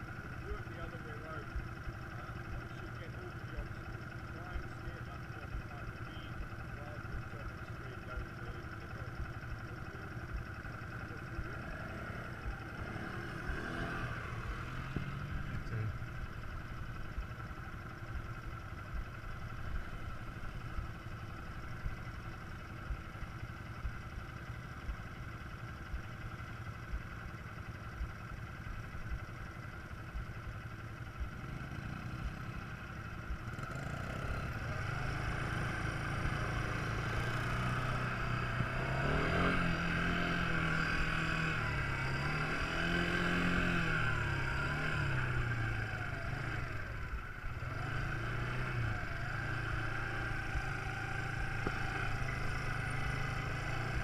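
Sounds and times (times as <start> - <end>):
quad bike engine running: 0.0 - 54.0.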